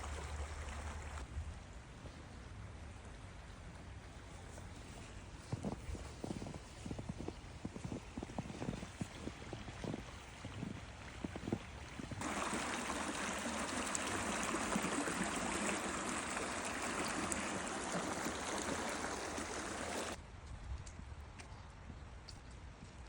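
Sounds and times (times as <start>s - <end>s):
rushing water: 0.0s - 1.3s, 8.5s - 20.2s.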